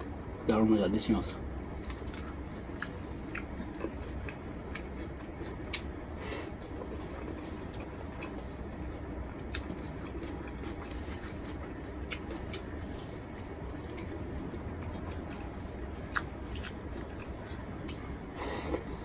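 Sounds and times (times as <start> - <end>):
steady low hum: 0.0 - 19.0
person chewing food: 1.6 - 19.0.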